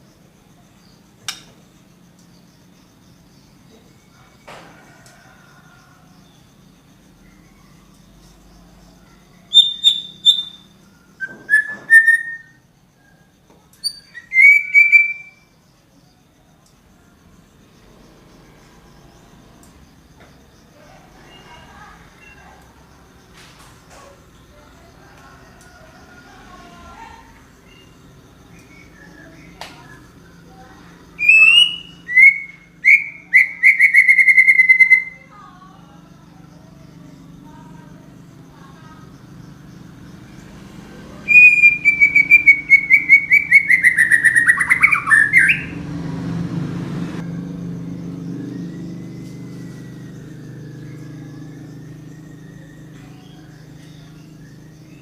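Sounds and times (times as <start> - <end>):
faint bird chirps: 0.0 - 17.2, 18.5 - 22.8, 23.5 - 45.8
songbird whistling: 9.4 - 12.6, 13.8 - 15.5, 31.1 - 35.3, 41.2 - 45.8.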